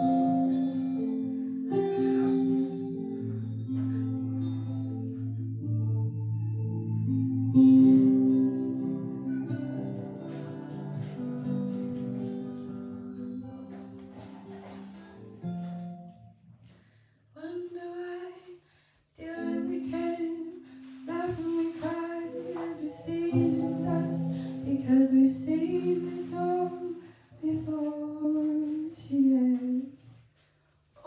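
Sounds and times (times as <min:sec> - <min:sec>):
woman singing long notes: 0:19.2 - 0:29.8
low accompaniment: 0:19.4 - 0:27.0.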